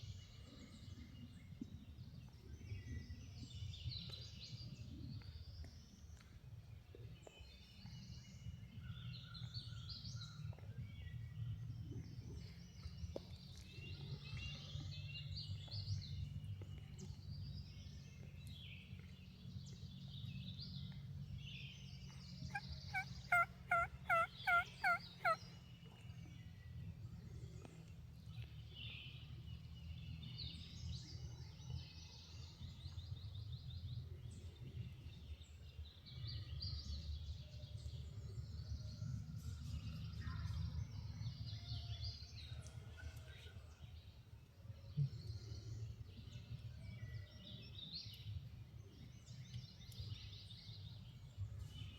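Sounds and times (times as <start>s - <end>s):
songbirds singing: 0.0s - 51.9s
turkey yelps: 22.5s - 25.4s.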